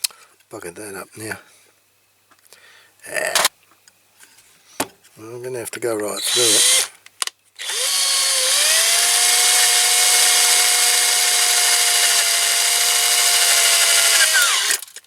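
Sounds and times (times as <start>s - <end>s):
electric drill drilling metal: 6.2s - 6.9s, 7.6s - 15.0s.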